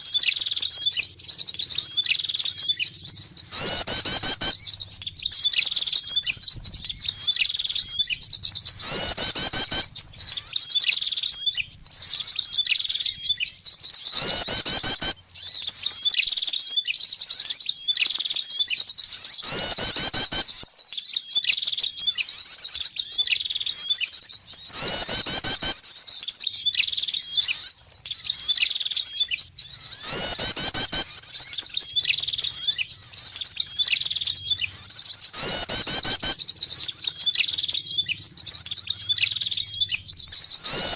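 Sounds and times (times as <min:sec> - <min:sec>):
songbirds chirping rapidly: 0:00.0 - 0:40.9
harsh bird call burst: 0:00.4 - 0:15.8, 0:19.2 - 0:20.7, 0:24.6 - 0:26.0, 0:29.6 - 0:40.9.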